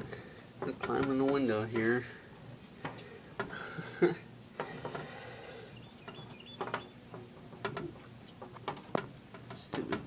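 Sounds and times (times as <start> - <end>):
window crank gears clicking: 6.0 - 6.9.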